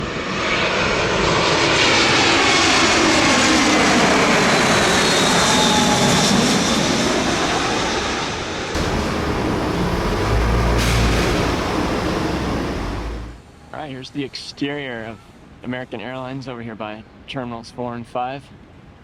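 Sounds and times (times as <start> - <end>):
jet aircraft passing overhead: 0.0 - 13.4.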